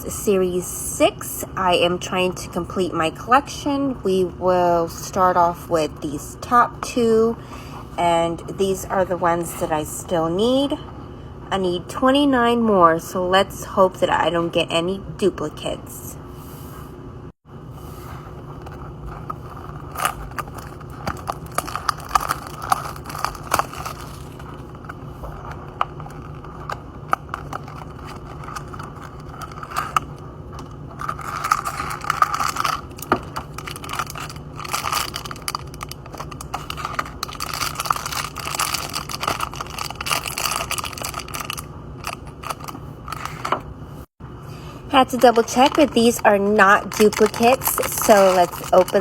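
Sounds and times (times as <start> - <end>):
steady low hum: 0.0 - 49.0
toy packs crinkling and scraping: 18.6 - 43.6, 45.0 - 49.0.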